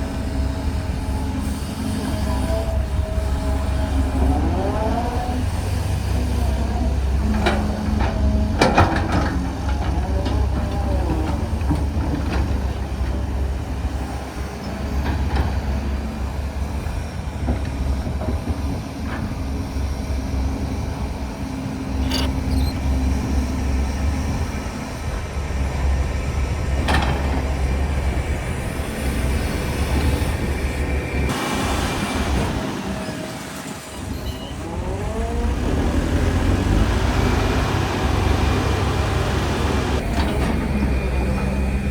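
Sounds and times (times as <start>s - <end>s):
diesel engine drone: 0.0s - 41.9s
squealing steel tracks: 0.0s - 41.9s
metal clanks: 22.0s - 22.6s.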